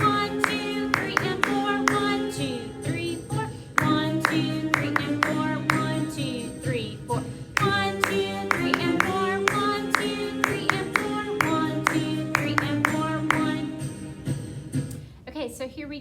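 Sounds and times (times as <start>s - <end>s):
sharp percussion strikes: 0.0s - 2.2s, 3.8s - 5.9s, 7.6s - 14.5s.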